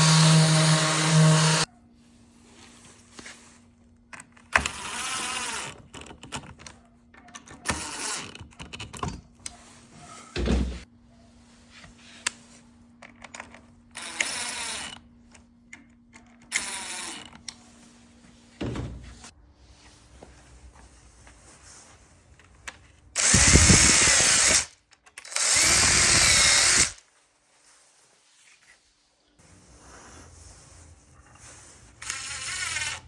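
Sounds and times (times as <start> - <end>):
power tool bursts: 23.2 - 27.0.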